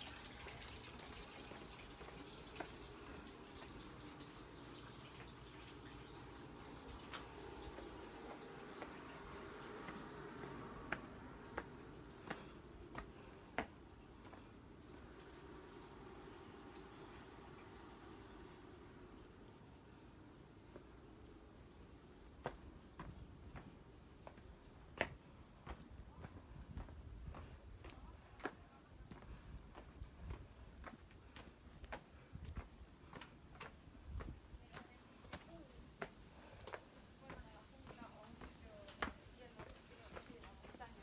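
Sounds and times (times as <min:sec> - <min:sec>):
night insects trilling: 0:00.0 - 0:41.0
footsteps: 0:07.1 - 0:15.6, 0:22.4 - 0:41.0.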